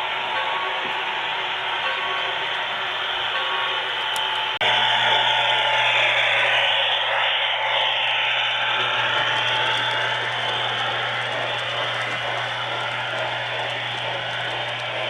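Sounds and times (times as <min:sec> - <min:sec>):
constant low hum: 0:00.0 - 0:15.0
model train wheels clattering on track: 0:08.8 - 0:15.0.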